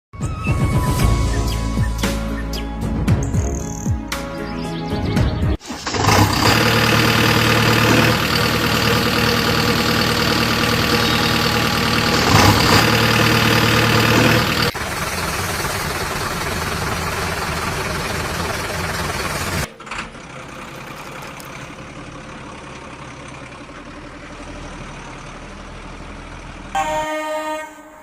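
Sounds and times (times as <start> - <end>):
diesel engine running: 5.6 - 27.1.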